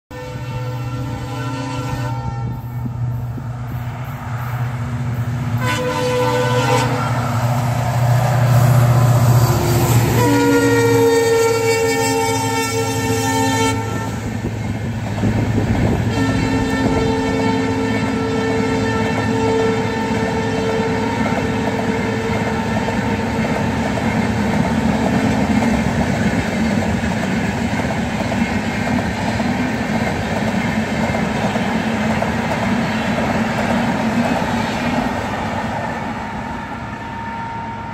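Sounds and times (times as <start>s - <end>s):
chord-like train horn: 0.1s - 3.0s, 5.6s - 7.4s, 9.3s - 14.4s, 16.0s - 23.4s, 37.0s - 37.9s
diesel locomotive engine: 0.1s - 37.9s
train wheels clickety-clack: 14.2s - 36.0s.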